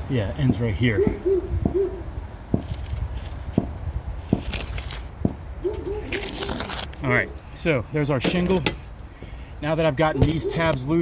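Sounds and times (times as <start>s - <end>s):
bird hooting softly: 0.9s - 2.1s
metallic jingling and scraping: 2.6s - 11.0s.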